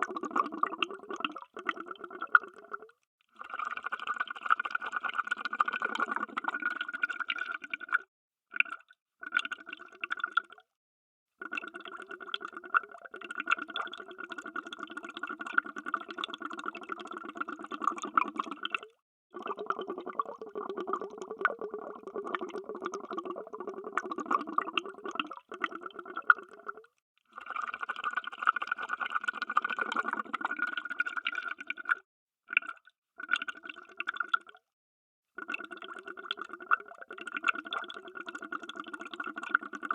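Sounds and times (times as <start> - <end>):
underwater bubbles gurgling: 0.0 - 2.9, 3.5 - 8.0, 11.5 - 34.5.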